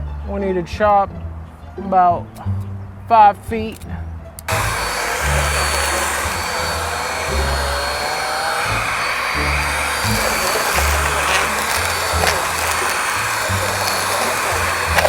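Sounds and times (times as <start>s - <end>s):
vacuum cleaner whining: 4.5s - 15.0s.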